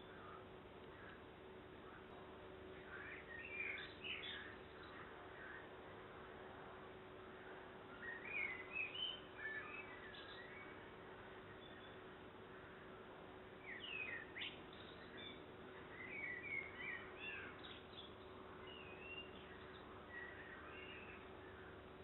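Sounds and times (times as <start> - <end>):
low hum and hiss: 0.0 - 22.0
songbird chirps and whistles: 2.7 - 5.6, 7.9 - 10.9, 11.5 - 12.1, 13.6 - 21.8.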